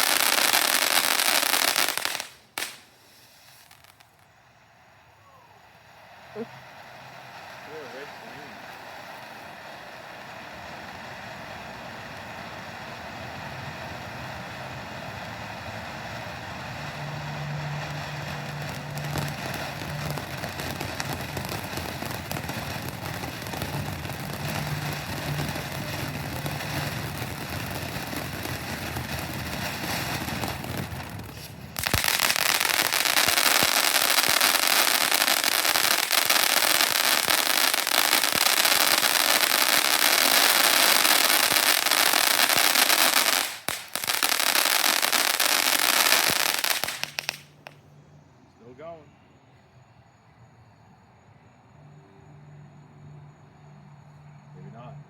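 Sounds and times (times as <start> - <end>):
loud dense crackling: 0.0 - 2.9, 16.9 - 47.7
firework fountain hissing: 0.0 - 47.9.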